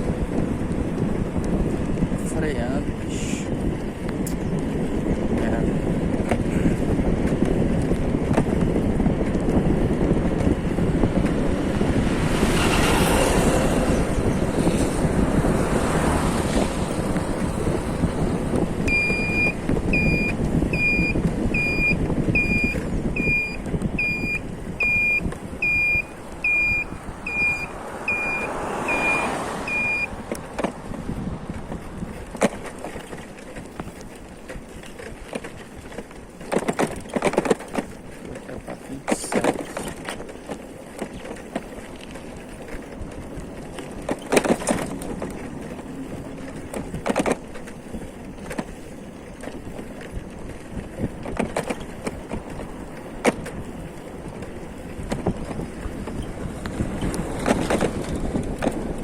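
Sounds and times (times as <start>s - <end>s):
moving vehicle rumble: 0.0s - 59.0s
high electronic beeps: 18.9s - 30.1s.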